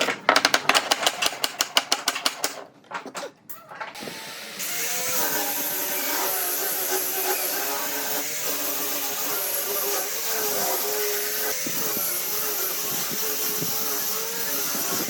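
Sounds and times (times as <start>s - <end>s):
electric power tool running: 4.0s - 15.0s.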